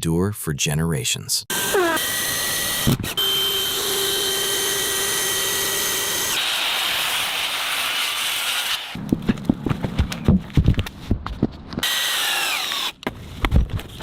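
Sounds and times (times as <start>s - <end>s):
power drill driving screw: 1.5s - 9.0s, 11.8s - 13.0s.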